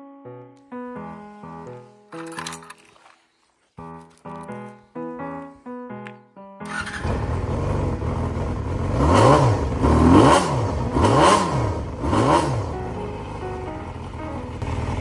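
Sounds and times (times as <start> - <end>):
motorcycle engine idling and revving: 6.7 - 15.0.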